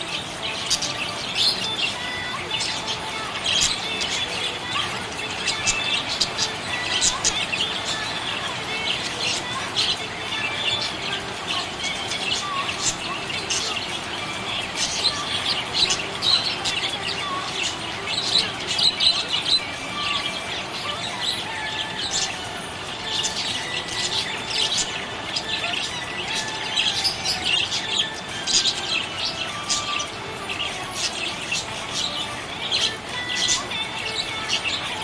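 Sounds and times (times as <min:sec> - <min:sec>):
budgerigars chirping: 0:00.0 - 0:35.0.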